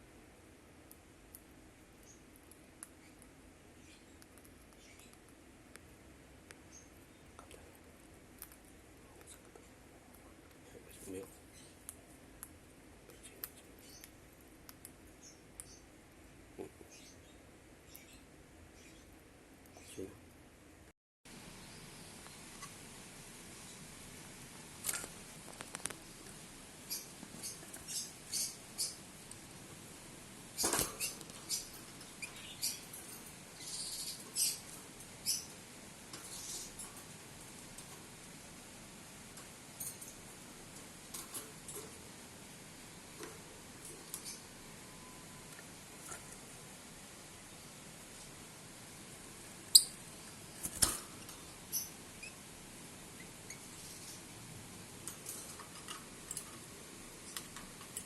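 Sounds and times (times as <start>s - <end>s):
small bird chirping: 0.8s - 5.5s, 6.5s - 16.0s, 16.6s - 20.2s, 21.5s - 22.9s, 24.8s - 29.6s, 30.4s - 38.5s, 43.1s - 46.6s, 49.6s - 54.4s.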